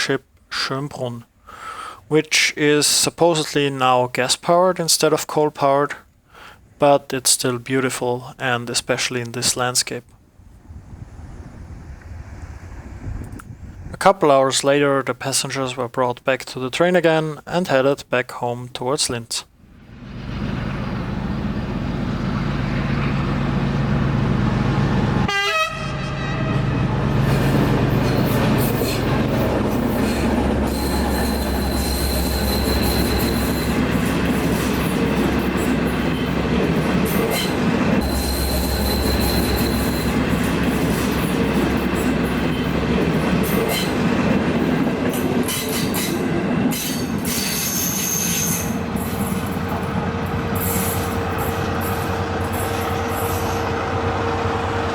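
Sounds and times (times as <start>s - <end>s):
diesel locomotive engine drone: 10.2s - 14.0s, 19.5s - 54.9s
high wheel squeal: 27.2s - 42.8s, 45.5s - 54.9s.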